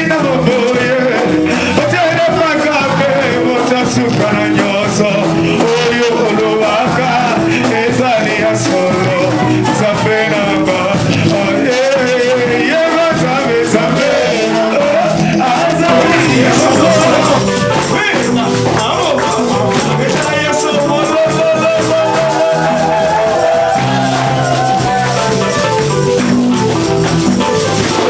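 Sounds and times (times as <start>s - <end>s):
instrumental accompaniment: 0.0s - 28.0s
voices singing worship music: 0.0s - 28.0s.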